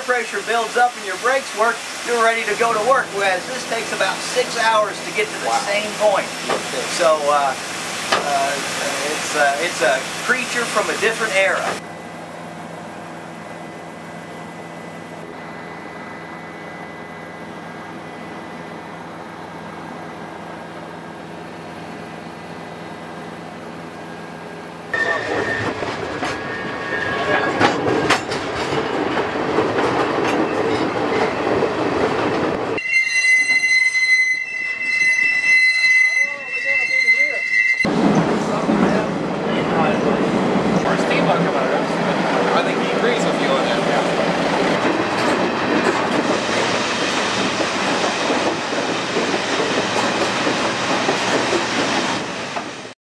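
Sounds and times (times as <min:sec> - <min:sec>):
train rattling and clanking: 0:00.0 - 0:32.8, 0:36.6 - 0:52.9
wheel squeal: 0:25.0 - 0:28.2, 0:32.8 - 0:37.9
high-pitched tones: 0:32.8 - 0:37.9.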